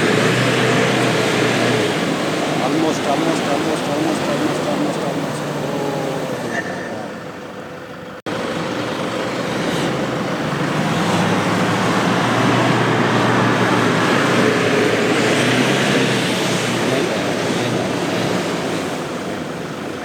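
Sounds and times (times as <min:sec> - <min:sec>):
broad rushing noise: 0:00.0 - 0:07.4
diesel engine under load: 0:00.0 - 0:20.0.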